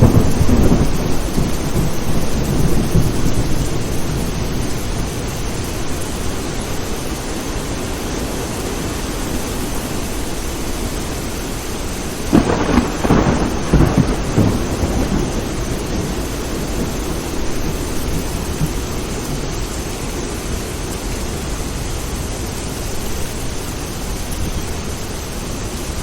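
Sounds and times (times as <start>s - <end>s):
thunderclap: 0.0s - 5.9s, 12.2s - 19.6s
steady rain: 0.0s - 26.0s.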